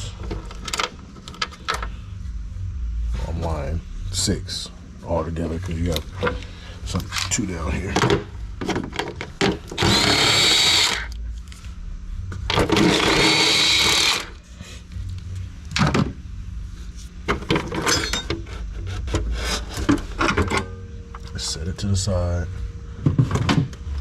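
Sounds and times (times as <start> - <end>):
power tool spinning bolts: 9.7 - 11.1, 12.5 - 14.4
clanking tool and fasteners: 17.4 - 18.4.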